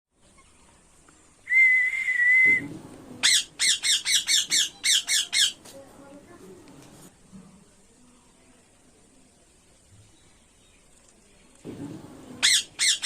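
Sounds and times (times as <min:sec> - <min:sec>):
high whistle: 0:01.5 - 0:02.7
parrot squawking harshly: 0:03.2 - 0:05.6, 0:12.4 - 0:13.0.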